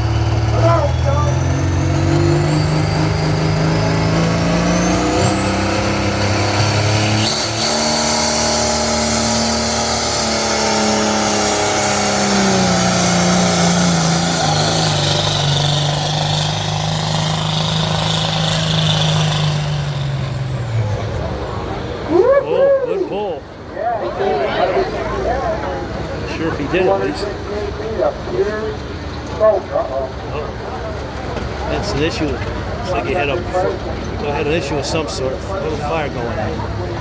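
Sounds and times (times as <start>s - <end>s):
tractor diesel engine under load: 0.0s - 23.8s, 24.4s - 37.0s.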